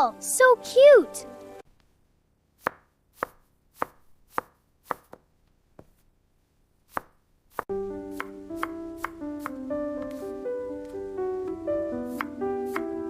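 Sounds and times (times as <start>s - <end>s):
knife chopping on wooden board: 2.6s - 6.0s, 6.9s - 10.2s, 12.1s - 12.9s
gentle piano music: 7.7s - 13.0s.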